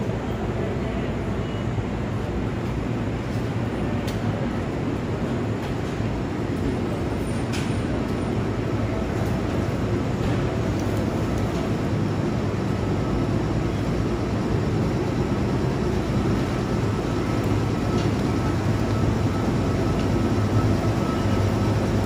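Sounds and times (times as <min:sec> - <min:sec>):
train rumbling into station: 0:00.0 - 0:22.0.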